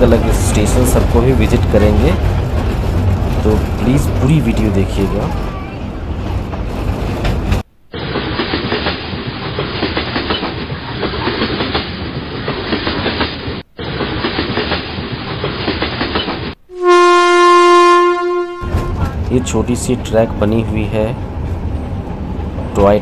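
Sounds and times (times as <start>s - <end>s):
train wheels clattering over rails: 0.0s - 16.6s
loud train horn blast: 16.7s - 19.1s.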